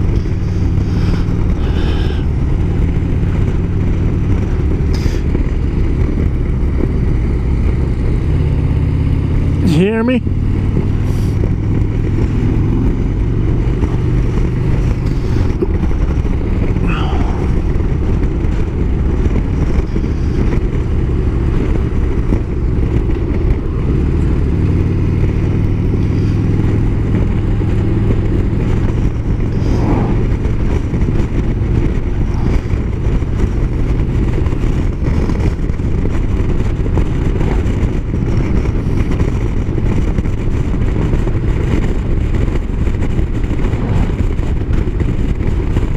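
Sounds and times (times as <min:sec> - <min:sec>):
motorcycle engine running: 0:00.0 - 0:45.9
wind and road noise: 0:00.0 - 0:45.9.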